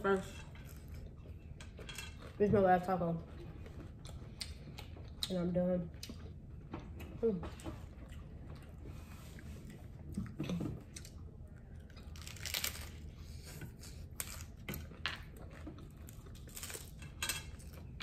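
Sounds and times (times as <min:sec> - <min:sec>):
taco shells crunching: 0:10.8 - 0:18.0.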